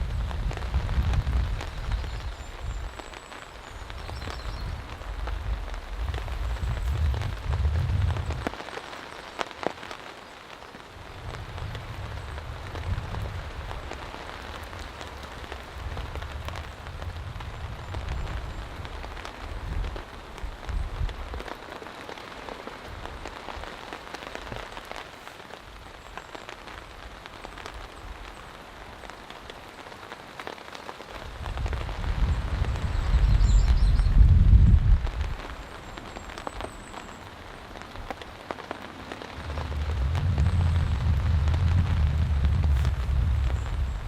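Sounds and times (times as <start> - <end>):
thunder rumbling: 0.0 - 3.0, 3.6 - 8.6, 31.3 - 35.8, 38.0 - 44.0
heavy rain falling: 0.0 - 44.0.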